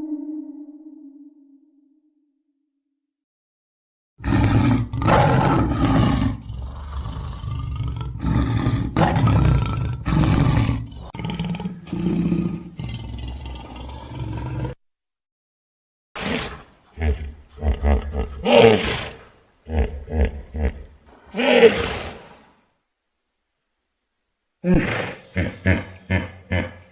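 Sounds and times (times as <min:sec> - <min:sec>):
large animal roaring: 0:04.2 - 0:14.8.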